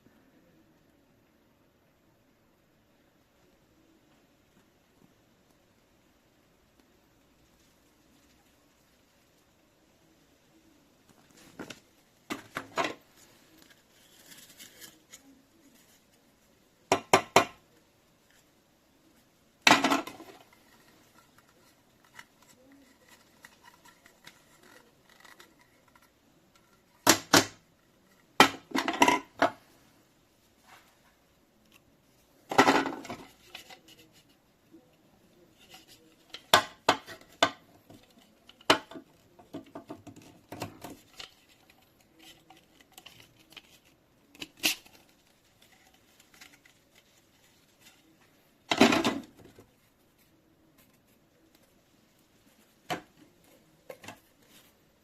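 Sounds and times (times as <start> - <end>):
hard objects clicking and knocking: 16.9 - 17.7, 19.6 - 29.6, 35.8 - 46.7.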